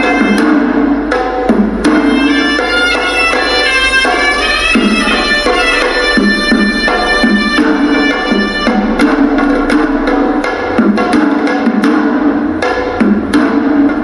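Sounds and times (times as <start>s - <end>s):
shrill double-reed pipe melody: 0.0s - 0.7s, 2.0s - 10.0s
beating drums: 0.0s - 14.0s.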